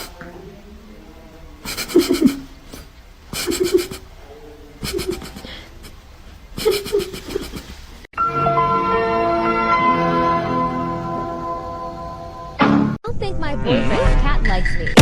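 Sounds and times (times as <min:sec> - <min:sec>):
pulsing vocal bursts: 0:03.4 - 0:04.0
music: 0:08.2 - 0:13.0.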